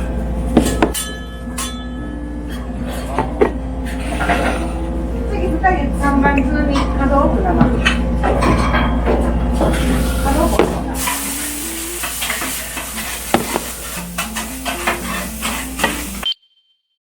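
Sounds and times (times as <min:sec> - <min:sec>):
dishes and utensils clinking: 0:00.5 - 0:04.9, 0:06.3 - 0:16.2
food sizzling: 0:09.7 - 0:16.3.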